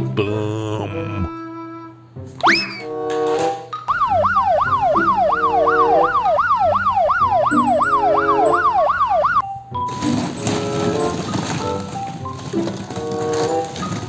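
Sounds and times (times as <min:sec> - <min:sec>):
light background music: 0:00.0 - 0:14.0
police siren wailing: 0:03.9 - 0:09.4.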